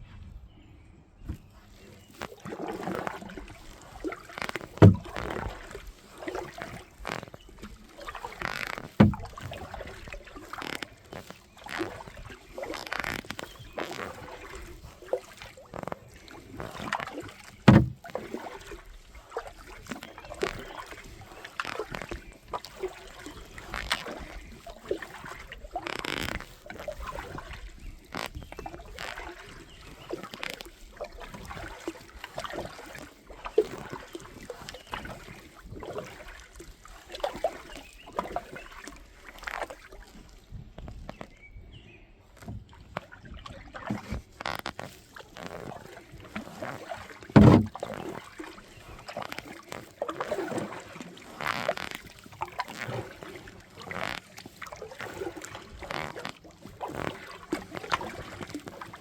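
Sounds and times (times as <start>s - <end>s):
kayak paddle splashing: 1.2s - 59.0s
sharp knocks: 9.0s - 9.2s, 17.7s - 18.0s.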